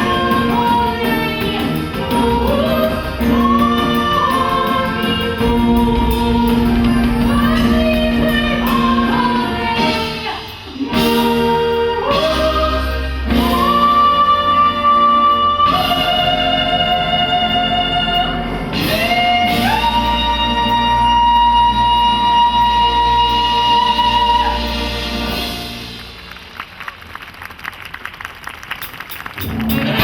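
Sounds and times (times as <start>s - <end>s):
woman singing long held notes: 0.0s - 25.1s
brass and band playing: 0.0s - 26.8s
choir singing: 2.0s - 20.1s.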